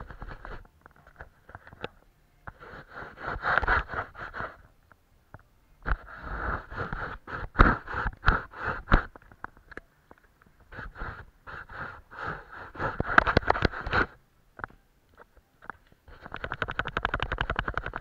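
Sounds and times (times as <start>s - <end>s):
paintbrush scrubbing on paper: 2.6s - 4.7s, 6.0s - 9.0s, 10.7s - 14.1s.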